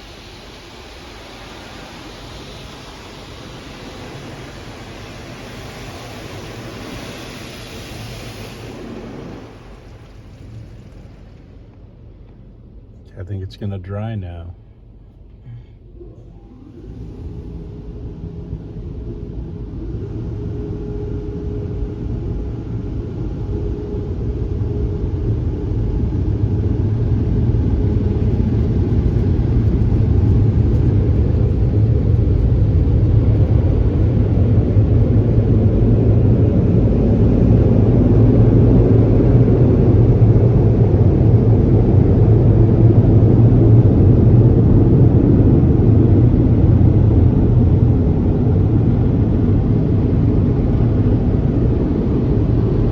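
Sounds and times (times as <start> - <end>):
car wash air blowers: 0.0 - 12.0, 22.5 - 52.5.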